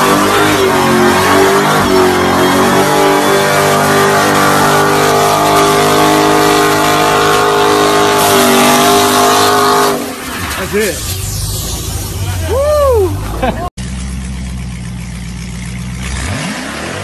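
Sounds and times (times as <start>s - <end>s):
car engine revving hard: 0.0s - 10.2s, 16.0s - 17.0s.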